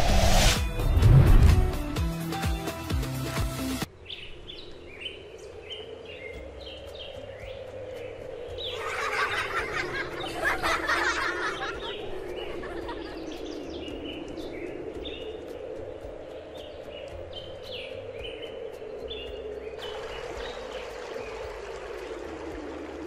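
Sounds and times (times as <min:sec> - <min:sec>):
small birds chirping: 0:03.9 - 0:22.1.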